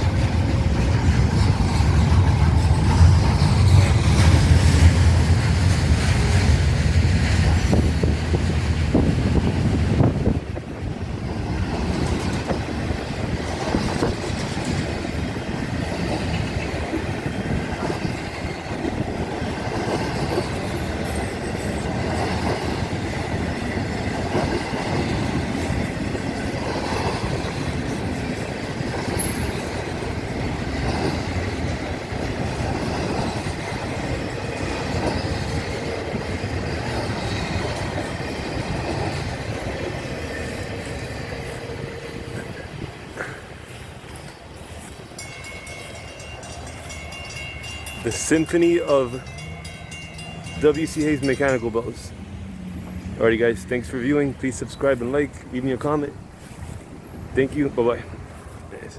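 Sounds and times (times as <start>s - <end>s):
train wheels clacking on rails: 0.0s - 58.9s
crossing bells ringing: 16.3s - 42.9s, 43.6s - 56.0s.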